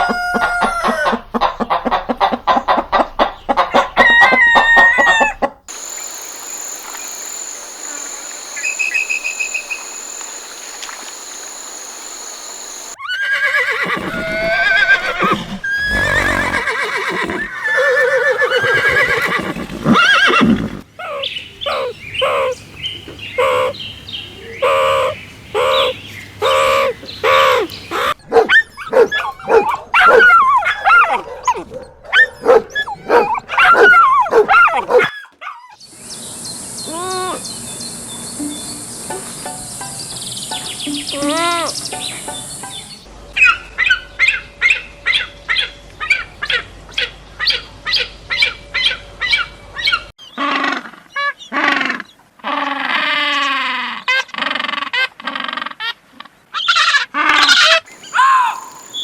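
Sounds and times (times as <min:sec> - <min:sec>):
donkey braying: 0:00.0 - 0:01.4, 0:12.9 - 0:22.6, 0:40.9 - 0:41.8, 0:57.3 - 0:59.0
insects chirring: 0:05.7 - 0:14.2, 0:36.0 - 0:43.1, 0:57.9 - 0:59.0.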